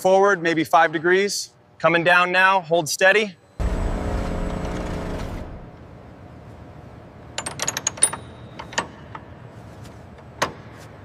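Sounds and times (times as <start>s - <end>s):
hoist motor humming: 3.6s - 6.0s.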